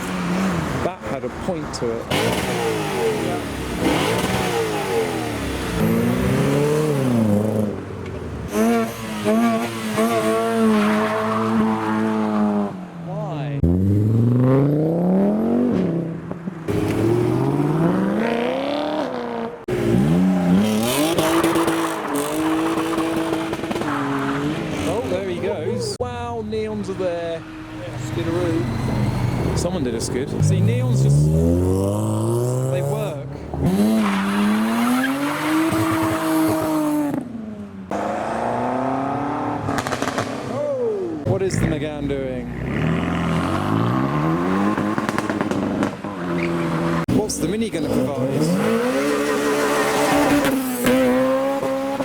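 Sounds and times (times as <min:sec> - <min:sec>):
car engine accelerating hard: 0:16.7 - 0:25.6, 0:27.8 - 0:37.3, 0:41.3 - 0:52.0.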